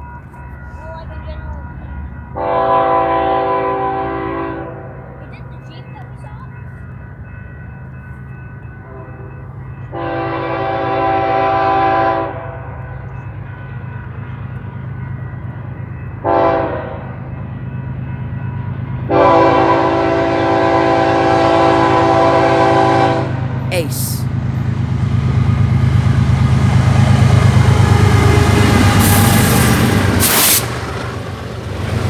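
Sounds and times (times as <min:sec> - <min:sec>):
locomotive air horn: 0:02.4 - 0:04.9, 0:09.9 - 0:12.7, 0:16.3 - 0:17.0, 0:19.1 - 0:23.4.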